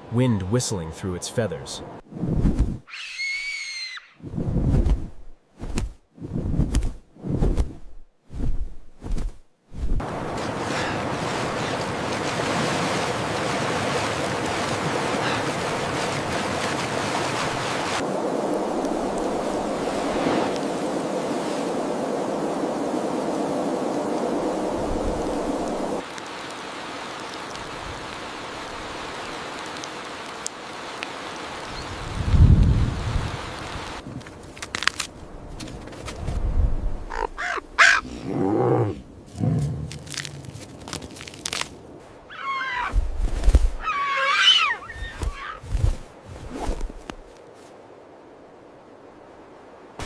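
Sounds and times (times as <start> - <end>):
animal crying: 2.9 - 4.2, 37.1 - 38.4, 42.3 - 43.0, 43.8 - 45.6
hiss of water: 10.0 - 34.0.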